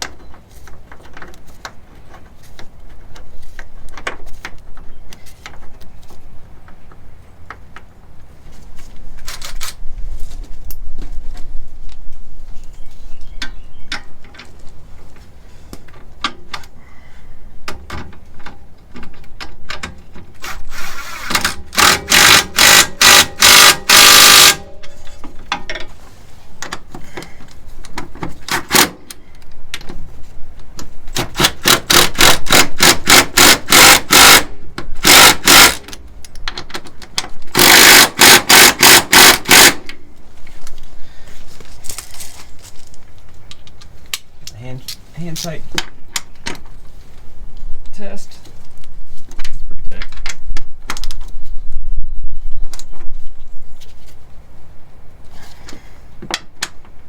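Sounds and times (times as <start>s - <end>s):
impact wrench hammering: 21.4s - 25.0s, 31.2s - 35.9s, 37.5s - 39.9s.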